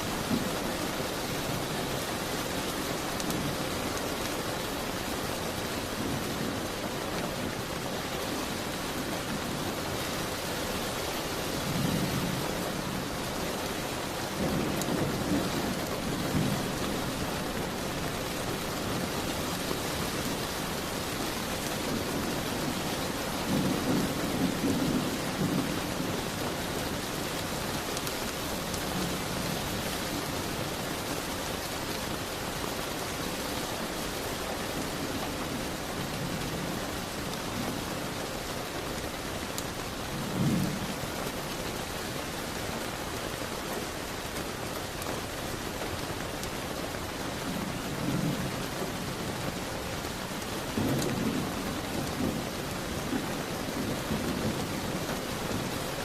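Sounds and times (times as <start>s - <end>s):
heavy rain: 0.0s - 56.0s
distant thunder rolling: 14.3s - 27.0s.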